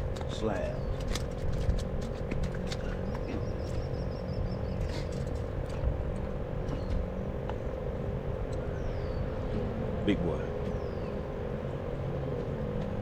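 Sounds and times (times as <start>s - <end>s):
distant motor drone: 0.0s - 13.0s
bird chirping trill: 2.8s - 5.2s, 8.5s - 9.4s, 10.6s - 11.8s.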